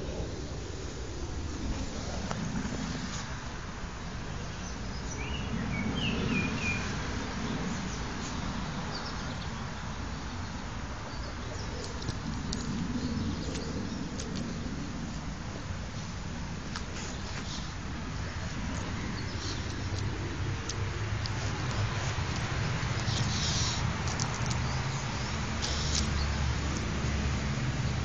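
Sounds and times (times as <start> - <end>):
small bird chirping: 18.7 - 26.9.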